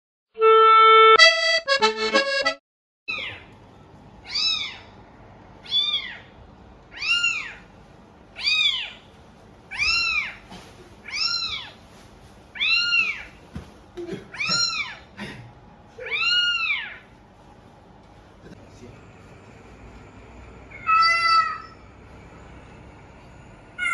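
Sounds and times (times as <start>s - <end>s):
cat meowing: 3.1s - 3.5s, 4.2s - 4.9s, 5.6s - 6.3s, 6.9s - 7.6s, 8.4s - 9.0s, 9.7s - 10.4s, 11.0s - 11.8s, 12.6s - 13.3s, 14.3s - 15.0s, 16.0s - 17.0s, 20.7s - 21.8s.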